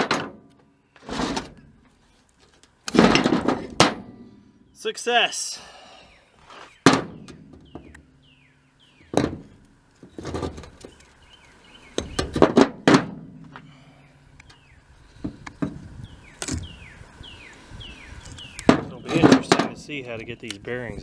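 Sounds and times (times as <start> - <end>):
metal parts clunking: 0.0 - 4.2.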